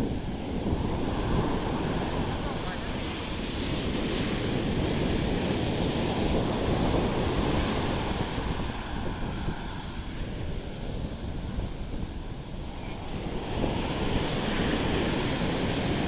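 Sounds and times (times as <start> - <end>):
surf washing up beach: 0.0 - 16.0
wind buffeting microphone: 0.0 - 16.0.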